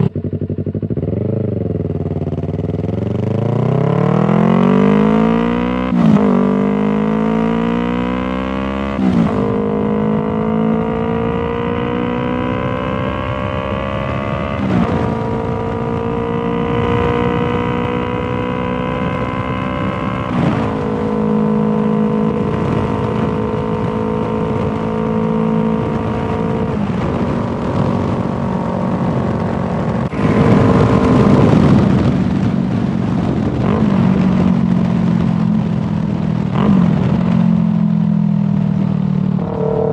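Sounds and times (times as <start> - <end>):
motorcycle engine shifting up: 8.8 - 39.9
rush of noise: 24.1 - 38.3, 39.1 - 39.9.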